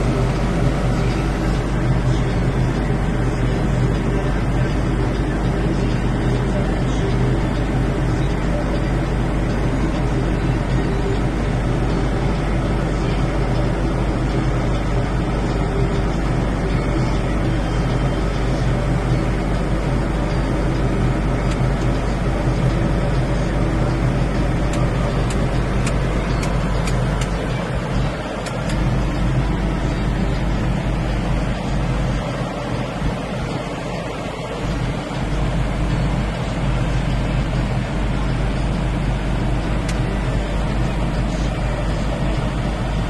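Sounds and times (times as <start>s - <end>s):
tractor engine humming: 0.0s - 43.0s
faint machinery clicks: 9.5s - 32.9s.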